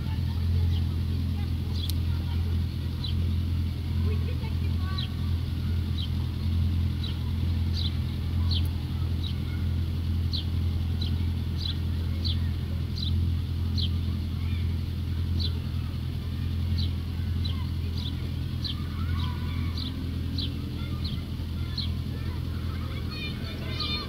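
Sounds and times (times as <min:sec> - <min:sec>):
engine or traffic hum: 0:00.0 - 0:24.0
small bird chirping: 0:04.9 - 0:24.0.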